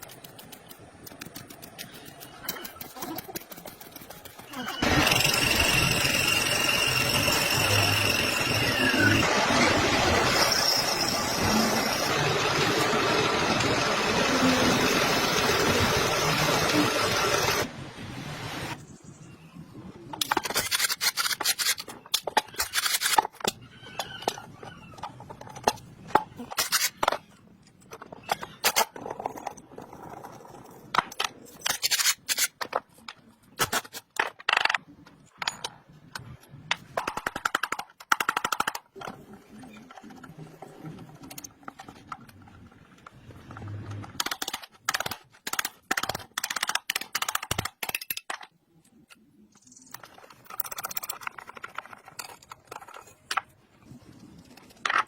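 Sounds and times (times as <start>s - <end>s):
power tool running: 4.8s - 17.7s.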